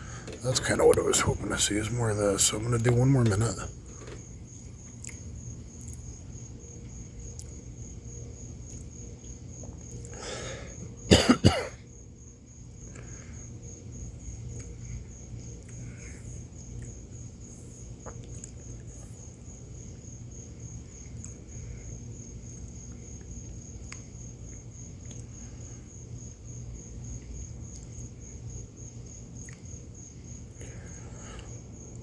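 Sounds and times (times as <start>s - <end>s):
crickets chirping: 0.0s - 32.0s
person coughing: 11.1s - 11.8s.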